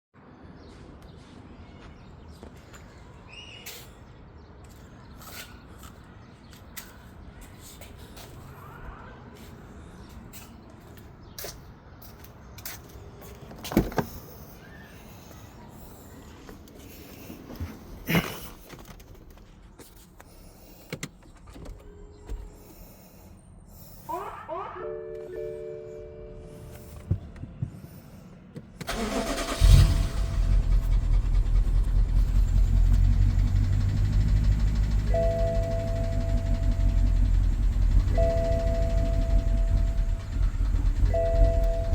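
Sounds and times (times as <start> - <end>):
low steady engine hum: 25.6 - 41.9
engine ticking: 28.8 - 41.9
starter motor cranking: 28.8 - 41.9.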